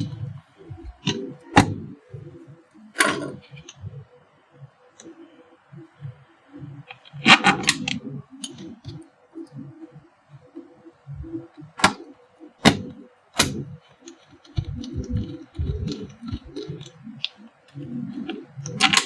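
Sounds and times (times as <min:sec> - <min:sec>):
plastic parts clicking: 0:12.6 - 0:19.0.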